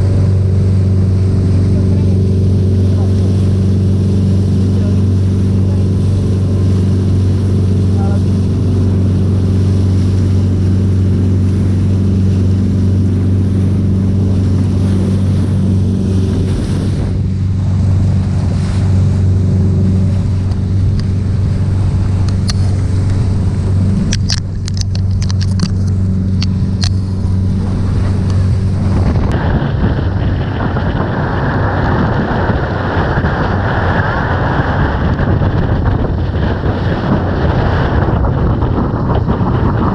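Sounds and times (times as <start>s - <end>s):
boat engine running: 0.0s - 39.9s
wind rushing on microphone: 0.0s - 39.9s
sharp clicks: 24.0s - 27.1s.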